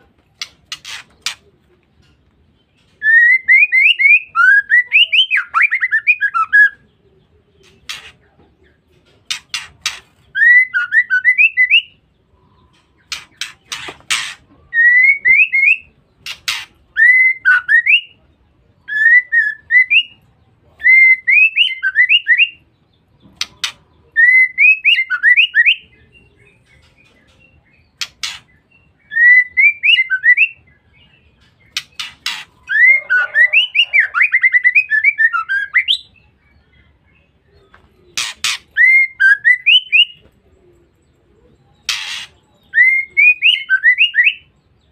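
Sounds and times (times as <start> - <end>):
bird whistling calls: 31.7 - 36.2, 38.2 - 40.2, 41.8 - 44.5.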